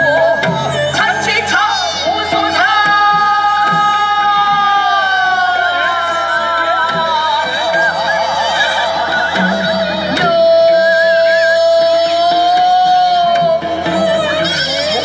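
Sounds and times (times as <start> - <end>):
traditional melody with wavering vibrato: 0.0 - 15.0.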